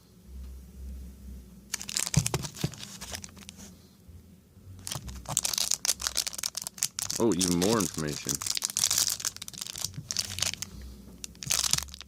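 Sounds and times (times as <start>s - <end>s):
wrapper crinkling: 1.7s - 3.7s, 4.8s - 12.0s.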